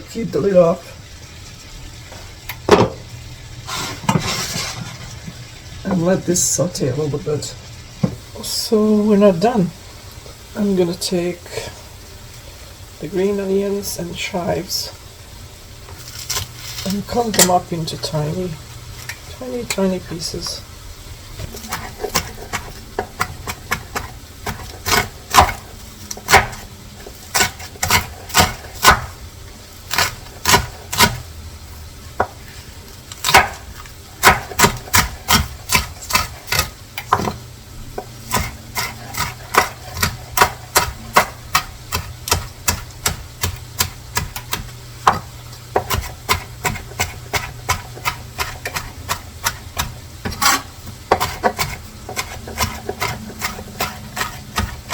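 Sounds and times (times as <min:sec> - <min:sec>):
knife chopping on cutting board: 0:21.6 - 0:25.6, 0:26.2 - 0:26.6, 0:27.3 - 0:29.1, 0:29.9 - 0:31.2, 0:33.2 - 0:33.6, 0:34.2 - 0:37.4, 0:38.0 - 0:54.9.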